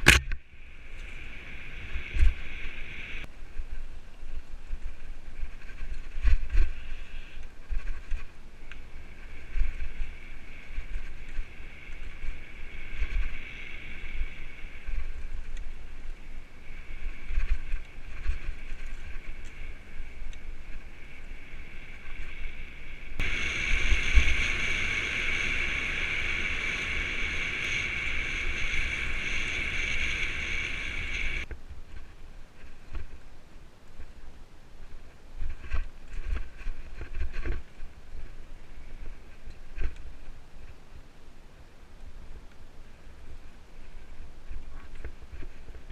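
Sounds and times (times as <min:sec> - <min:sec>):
wind on microphone: 0:00.0 - 0:33.3
freewheel hub whirring: 0:09.3 - 0:31.5
bike rumbling over trail: 0:16.3 - 0:31.5.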